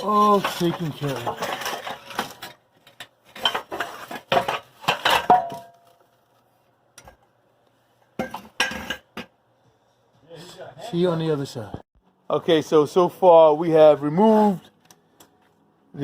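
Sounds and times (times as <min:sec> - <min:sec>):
metal clanking and clinking: 0:00.0 - 0:05.9.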